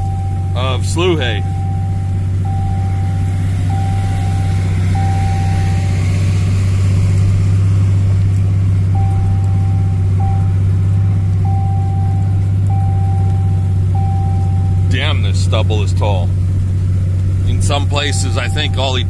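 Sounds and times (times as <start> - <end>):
truck engine drone: 0.0 - 19.0
high-pitched beep: 1.2 - 6.1, 9.0 - 10.6, 11.4 - 15.0.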